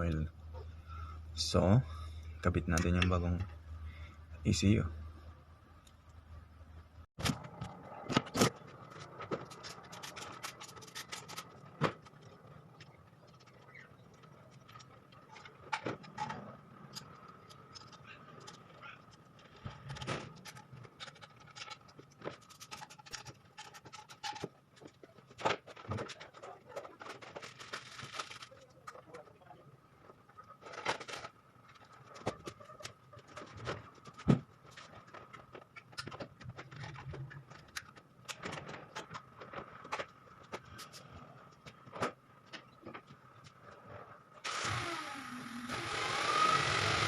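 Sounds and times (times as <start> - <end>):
hands clicking and scraping parts: 7.2 - 44.4.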